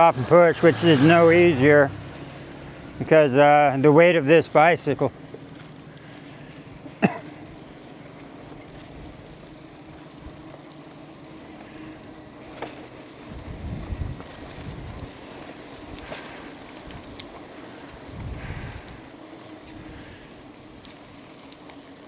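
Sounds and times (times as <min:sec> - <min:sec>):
steady low hum: 0:00.0 - 0:22.0
wind buffeting microphone: 0:13.3 - 0:15.2, 0:18.0 - 0:19.0.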